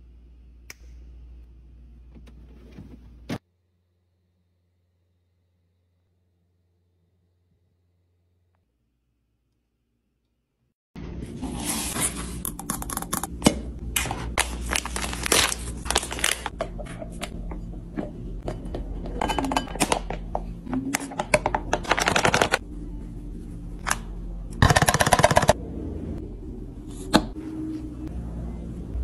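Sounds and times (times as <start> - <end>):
packaging and containers handled: 14.0 - 17.4.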